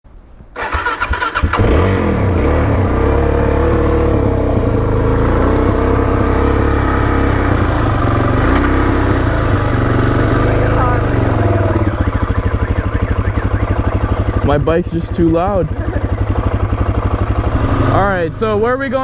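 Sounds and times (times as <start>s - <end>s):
motorcycle engine idling: 0.6s - 19.0s.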